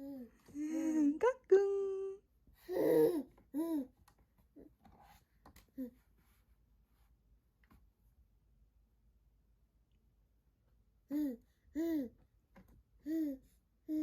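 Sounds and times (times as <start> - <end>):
baby babbling: 0.0 - 0.3, 2.7 - 3.9, 11.1 - 12.1.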